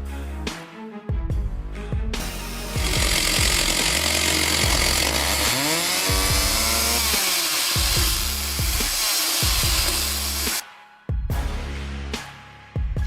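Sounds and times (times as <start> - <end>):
chainsaw cutting wood: 2.2 - 10.6
music with bass beat: 6.1 - 7.1, 7.8 - 12.2.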